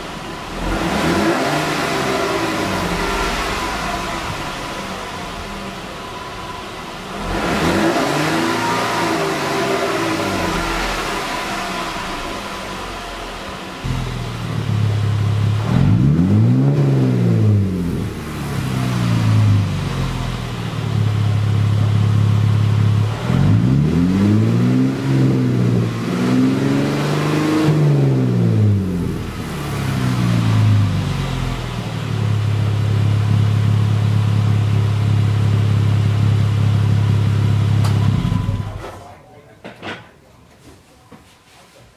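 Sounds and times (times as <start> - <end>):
car engine revving: 0.0 - 38.8.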